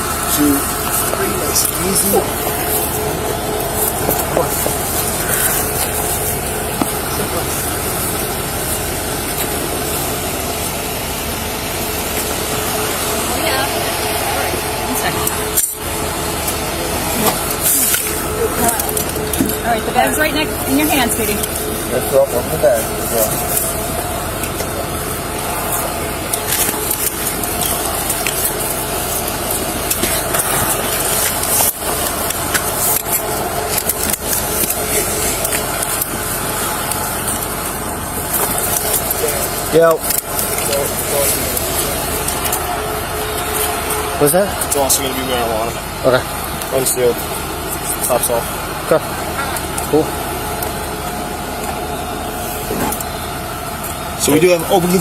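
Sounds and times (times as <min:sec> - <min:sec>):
vehicle engine idling: 0:00.0 - 0:55.0.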